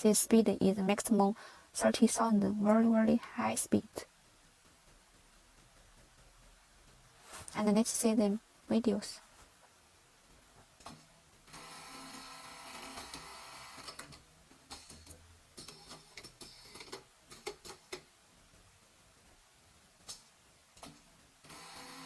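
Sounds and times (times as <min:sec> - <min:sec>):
sewing machine hum: 0:11.4 - 0:15.1, 0:21.4 - 0:22.0.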